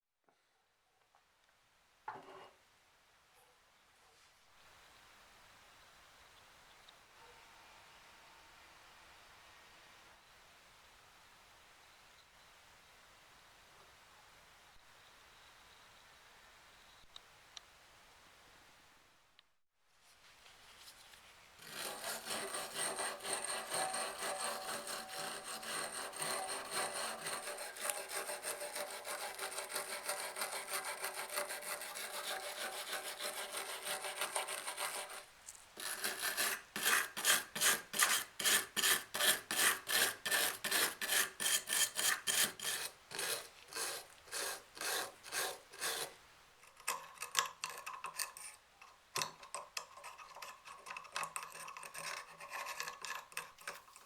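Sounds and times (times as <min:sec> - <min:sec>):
hand scrubbing with abrasive: 0:21.6 - 0:46.1.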